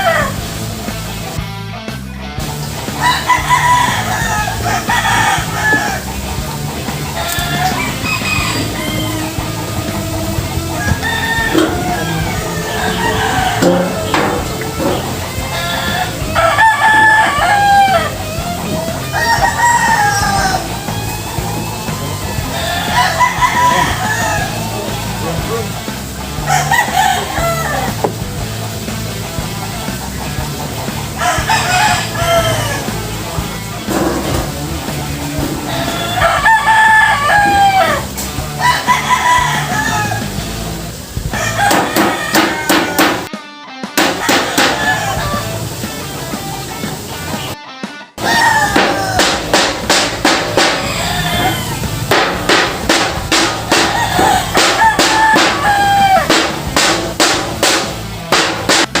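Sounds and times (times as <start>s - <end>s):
rooster crowing: 0.0s - 0.4s, 3.0s - 6.2s, 7.2s - 25.2s, 26.4s - 28.0s, 31.2s - 33.0s, 35.0s - 40.4s, 41.3s - 43.3s, 44.1s - 45.7s, 48.2s - 57.4s
background music: 0.0s - 59.0s
sharp knocks: 13.3s - 15.6s, 41.7s - 43.3s, 44.0s - 44.8s, 48.7s - 50.9s, 52.1s - 55.6s, 56.2s - 59.0s.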